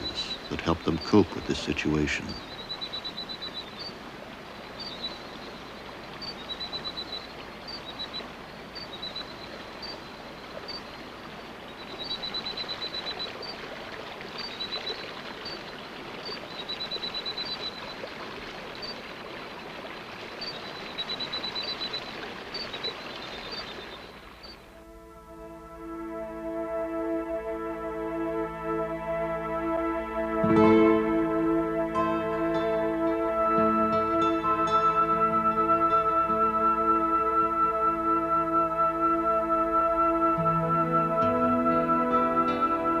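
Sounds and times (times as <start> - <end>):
frogs trilling: 0.0 - 24.8
rushing water: 0.0 - 43.0.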